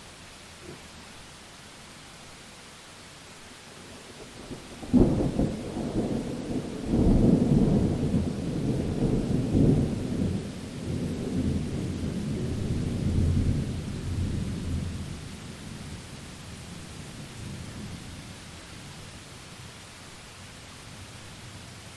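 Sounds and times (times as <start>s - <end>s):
rain hissing: 0.0s - 21.9s
thunder clap and rumble: 4.5s - 15.2s.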